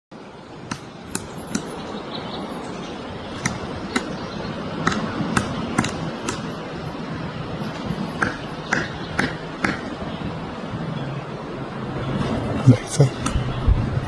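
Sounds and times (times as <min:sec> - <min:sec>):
steady background hiss: 0:00.2 - 0:14.0
woodpecker pecking at wood: 0:04.8 - 0:06.5.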